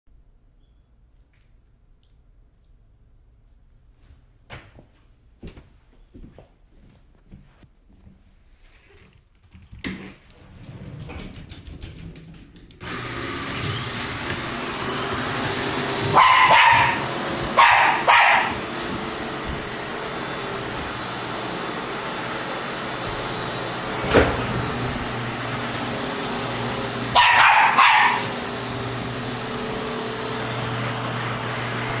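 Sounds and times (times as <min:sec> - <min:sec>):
vacuum cleaner running: 0:12.8 - 0:32.0
dog barking: 0:16.0 - 0:18.7, 0:27.1 - 0:28.4.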